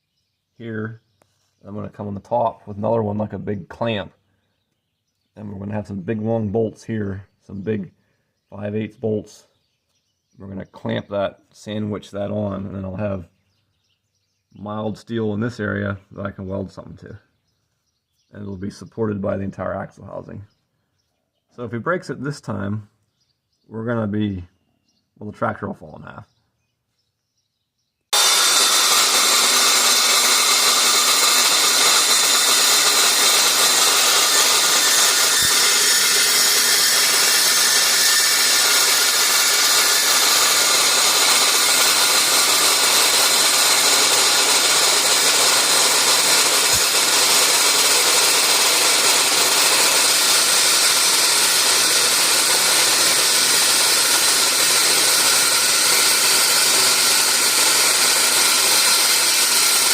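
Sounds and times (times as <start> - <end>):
power tool hissing on steel: 28.1 - 59.9.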